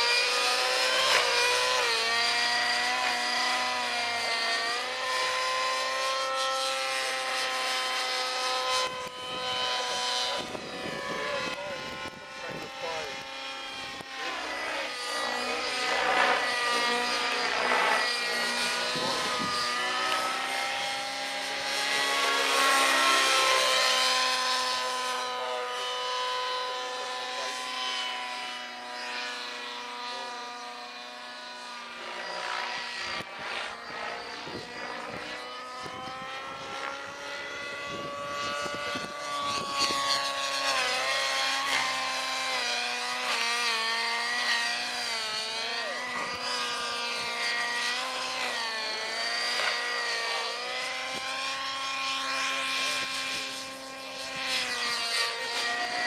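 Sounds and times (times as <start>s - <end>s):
model helicopter rotor whine: 0.0s - 56.0s.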